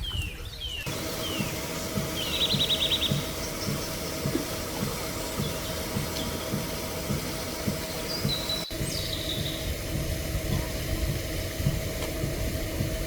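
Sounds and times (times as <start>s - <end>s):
bird chirping: 0.0s - 9.8s
steady mechanical hum: 0.0s - 13.0s.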